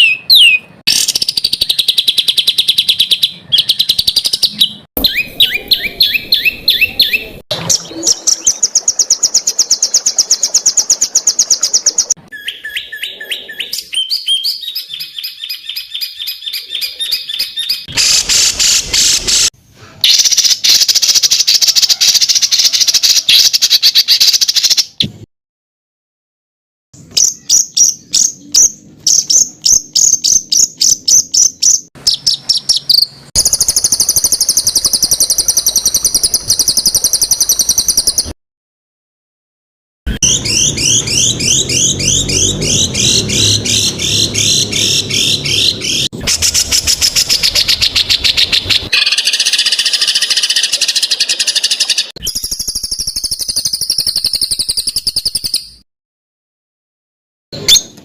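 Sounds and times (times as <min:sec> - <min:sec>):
songbird song with buzzy trills: 0:00.0 - 0:17.9, 0:27.0 - 0:38.4, 0:40.1 - 0:55.8.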